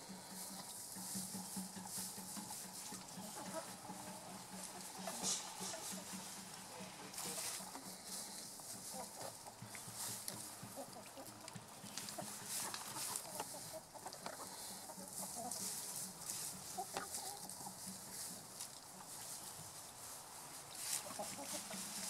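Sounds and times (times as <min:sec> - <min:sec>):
steady high hiss: 0:00.0 - 0:10.8
chickens clucking: 0:00.0 - 0:22.0.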